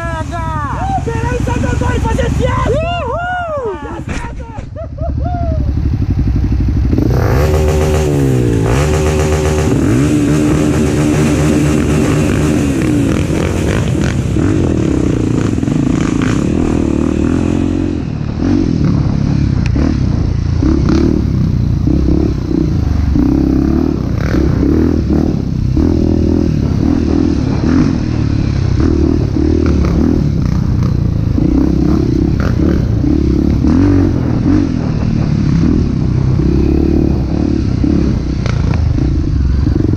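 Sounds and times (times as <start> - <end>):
motorcycle engine revving: 5.1 - 39.9.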